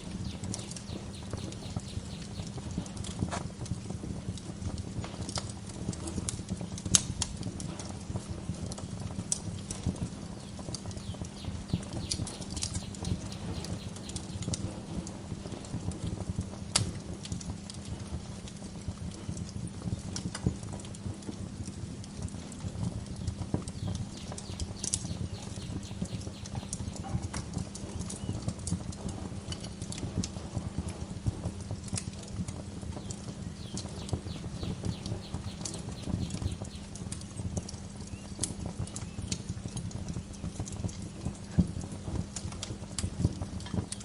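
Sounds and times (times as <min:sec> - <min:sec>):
low steady rumble: 0:00.0 - 0:06.4, 0:19.9 - 0:44.0
wood fire crackling: 0:00.0 - 0:44.0.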